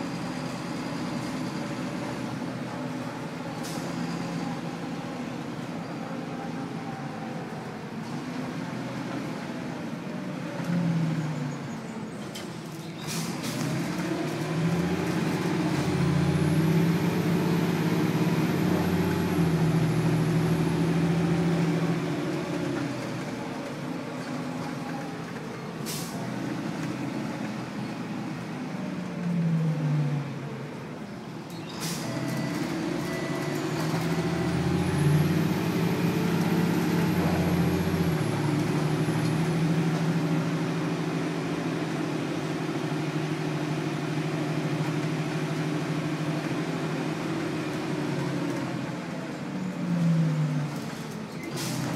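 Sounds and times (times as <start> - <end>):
bus engine accelerating: 0.0 - 51.9
air brake hisses: 25.8 - 26.2, 31.7 - 32.2.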